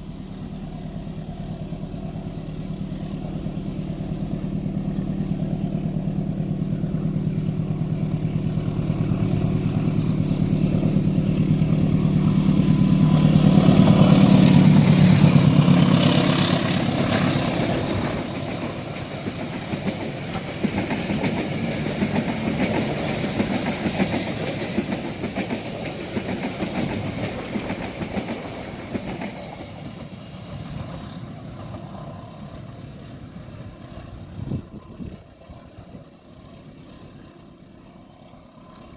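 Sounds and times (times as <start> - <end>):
locomotive engine drone: 0.0 - 38.9
carriages rattling over rail joints: 2.3 - 36.7.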